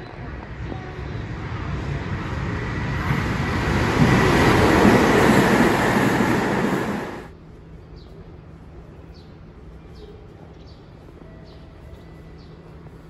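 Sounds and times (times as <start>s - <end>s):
train wheels rumbling on rails: 0.0s - 7.3s.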